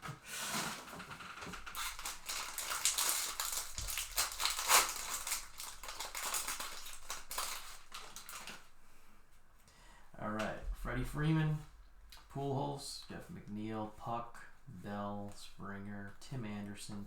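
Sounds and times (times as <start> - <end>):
card wrappers tearing and crinkling: 0.2 - 8.7.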